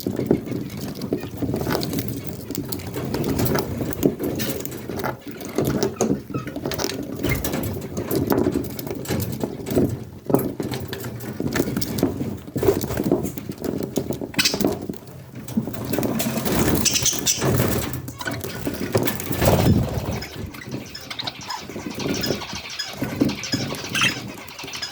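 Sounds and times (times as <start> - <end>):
budgerigar chicks chattering: 0.0 - 8.6, 14.3 - 14.8, 16.2 - 24.9.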